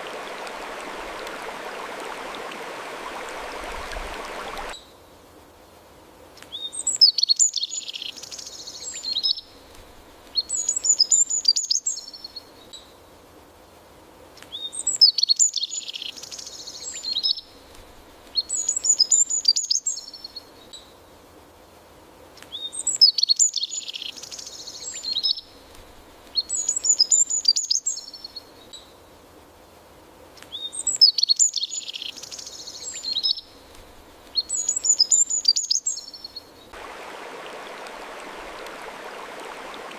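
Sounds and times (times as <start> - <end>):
faint background ambience: 0.0 - 6.4, 36.5 - 39.9
songbird twittering song: 6.5 - 9.7, 14.5 - 17.7, 22.5 - 25.7, 26.3 - 29.0, 30.5 - 33.7, 34.3 - 36.8.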